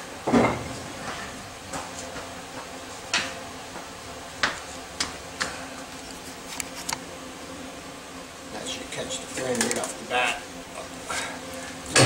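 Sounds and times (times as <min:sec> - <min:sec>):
heavy clunk: 0:00.3 - 0:01.3.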